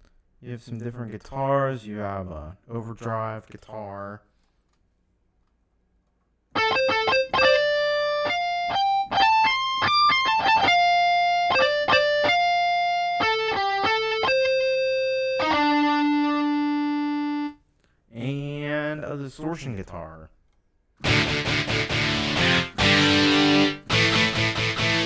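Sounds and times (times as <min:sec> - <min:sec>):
overdrive electric guitar melody: 0:06.6 - 0:17.6, 0:21.0 - 0:25.0.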